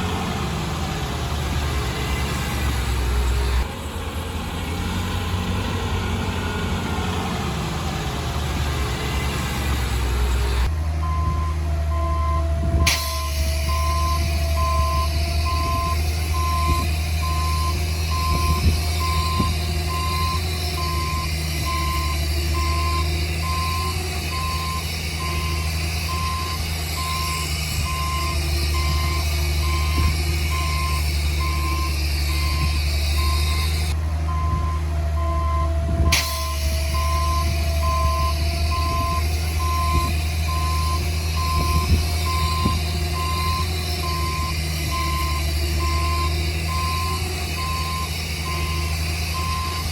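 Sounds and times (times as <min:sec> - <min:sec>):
low diesel engine drone: 0:00.0 - 0:49.9
reversing alarm beeping: 0:11.0 - 0:49.9.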